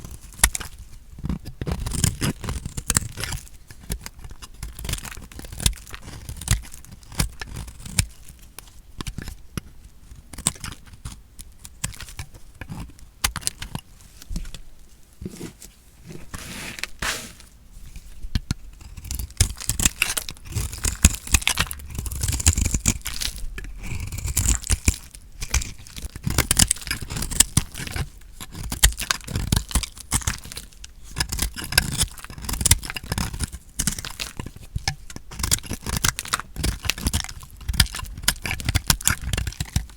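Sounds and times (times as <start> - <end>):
knife cutting bar soap: 15.2 - 21.6.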